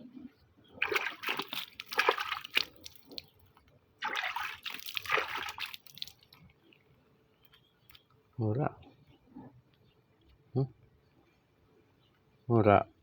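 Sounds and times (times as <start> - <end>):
water splashing: 0.8 - 3.4, 4.0 - 6.6.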